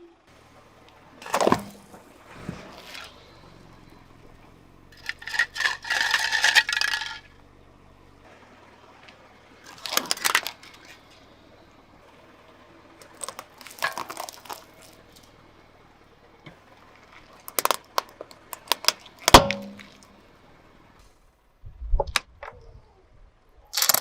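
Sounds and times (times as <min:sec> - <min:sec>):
objects crunching under car tire: 0:01.1 - 0:07.3, 0:08.9 - 0:11.4, 0:13.0 - 0:15.4, 0:16.4 - 0:20.2, 0:23.8 - 0:24.0.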